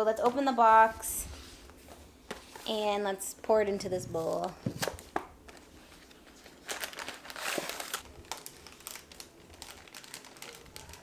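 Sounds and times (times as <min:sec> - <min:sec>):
packaging crinkling and rustling: 0:04.8 - 0:11.0.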